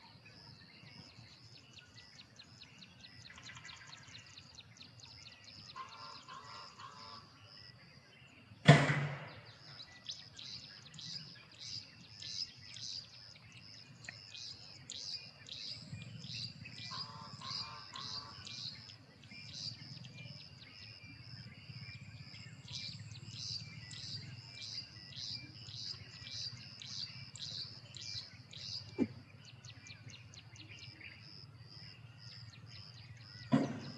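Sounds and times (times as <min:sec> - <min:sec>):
sharp knock: 0:08.7 - 0:09.4, 0:33.5 - 0:33.9
wren singing: 0:09.7 - 0:20.7, 0:22.0 - 0:31.2.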